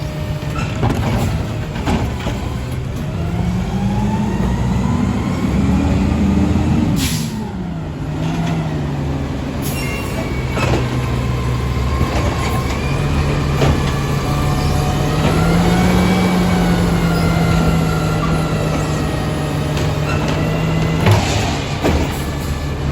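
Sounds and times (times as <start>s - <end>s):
garbage truck diesel engine: 0.0s - 22.9s
air brakes hissing: 6.9s - 7.6s, 9.6s - 11.0s
sharp knocks and clanks: 11.9s - 14.2s, 18.2s - 22.9s.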